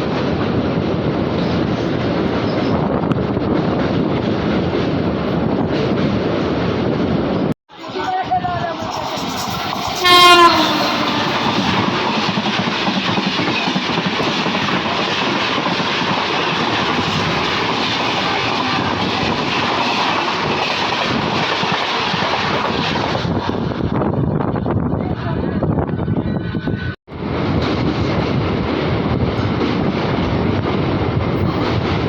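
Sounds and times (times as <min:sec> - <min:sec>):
train wheels on track: 0:00.0 - 0:32.0
train horn: 0:10.0 - 0:11.8.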